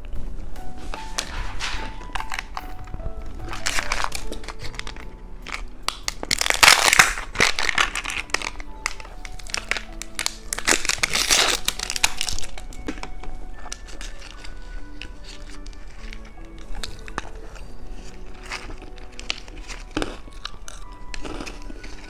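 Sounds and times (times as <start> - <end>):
background music: 0.0 - 22.0
candy wrapper crinkling and crunching: 0.8 - 22.0.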